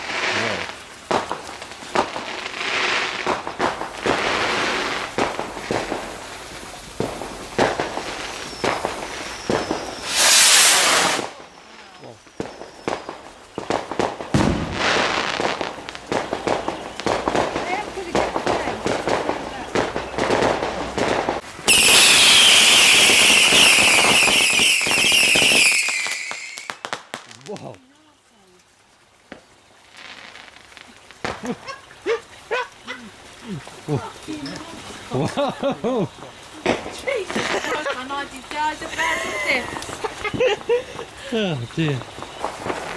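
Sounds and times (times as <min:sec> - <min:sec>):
firework rushing hiss: 0:00.0 - 0:27.8, 0:35.2 - 0:42.9
fireworks bangs and cracks: 0:00.0 - 0:27.8, 0:29.3 - 0:31.7, 0:35.3 - 0:42.9
faint falling whistle: 0:08.4 - 0:10.6.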